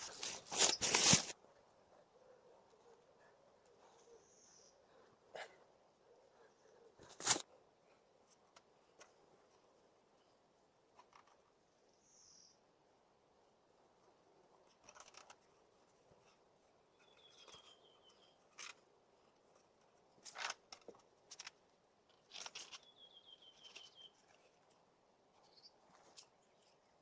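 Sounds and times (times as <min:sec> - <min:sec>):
twigs and leaves rustling: 0:00.0 - 0:01.4, 0:17.0 - 0:26.9.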